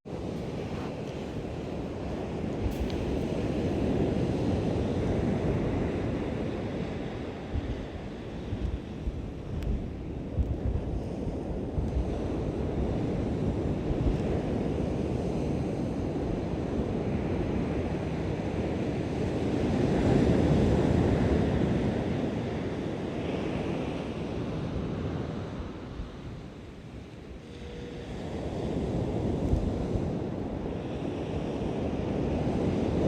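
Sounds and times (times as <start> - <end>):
waves washing onto beach: 0.1 - 10.2
wind rumbling on microphone: 0.1 - 33.0.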